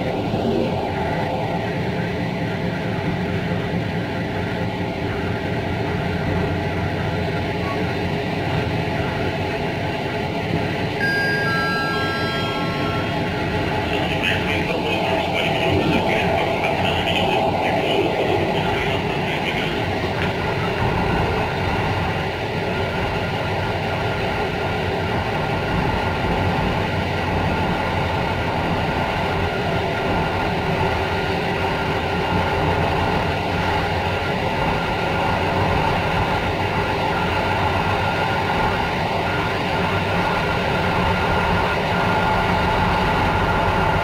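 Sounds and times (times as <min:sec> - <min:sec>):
train wheels rumbling on track: 0:00.0 - 0:44.0
faint steady tones: 0:06.7 - 0:25.1.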